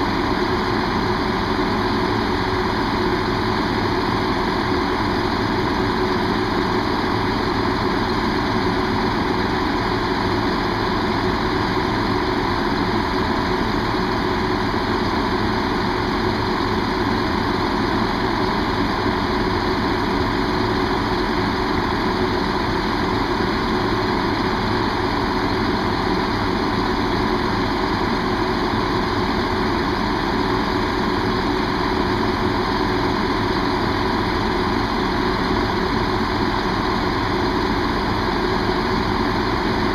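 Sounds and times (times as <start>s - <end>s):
diesel train engine idling: 0.0s - 39.9s.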